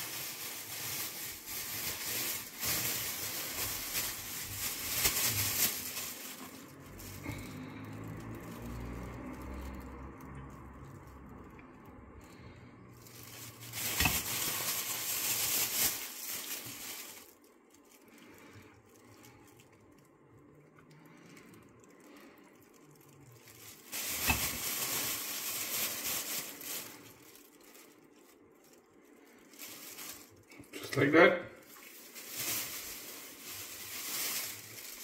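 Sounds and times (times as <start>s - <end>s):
plastic bag crinkling: 0.0s - 35.0s.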